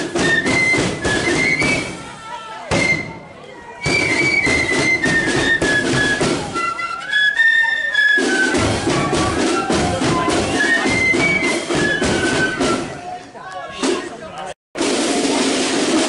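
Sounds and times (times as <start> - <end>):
marching drum beat: 0.0 - 2.0, 2.7 - 3.2, 3.8 - 6.7, 8.2 - 13.0, 14.8 - 16.0
flutes playing a melody: 0.0 - 13.1.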